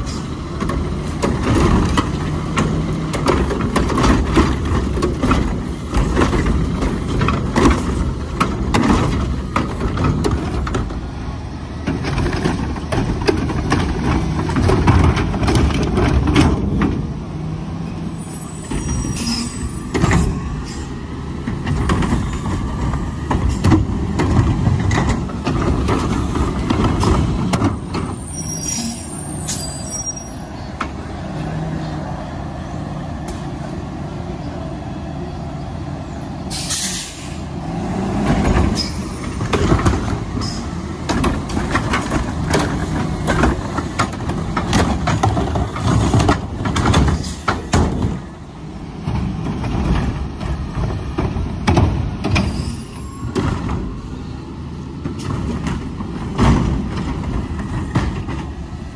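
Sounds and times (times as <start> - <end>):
diesel engine rumbling: 0.0 - 58.9
clanks and knocks: 0.5 - 11.0, 11.8 - 17.1, 21.4 - 28.2, 38.2 - 48.3, 49.0 - 54.0, 55.0 - 58.6
brakes squealing: 17.8 - 58.9.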